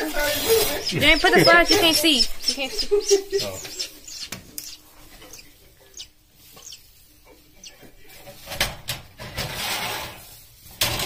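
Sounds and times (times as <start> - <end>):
swift chicks chirping: 0.0 - 8.1.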